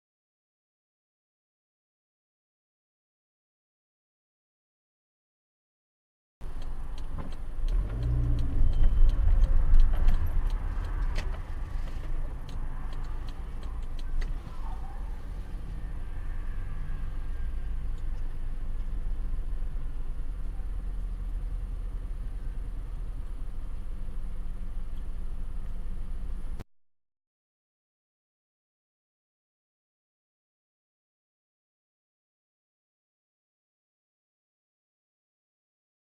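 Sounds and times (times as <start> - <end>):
sharp clicks and knocks: 6.4 - 14.5
car engine rumble: 6.4 - 26.6.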